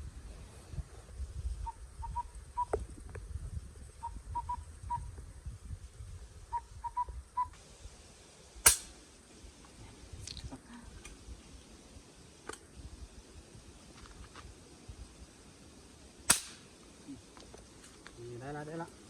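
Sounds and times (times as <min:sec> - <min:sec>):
short whistled calls: 0:04.0 - 0:05.1, 0:06.5 - 0:07.6
loud gunshot: 0:08.6 - 0:08.9, 0:16.3 - 0:16.7.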